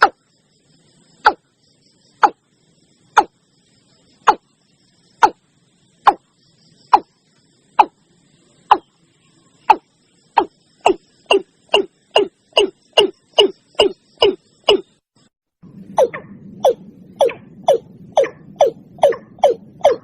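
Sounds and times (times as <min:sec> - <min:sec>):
watercock calling: 0:09.7 - 0:14.9, 0:16.0 - 0:20.0.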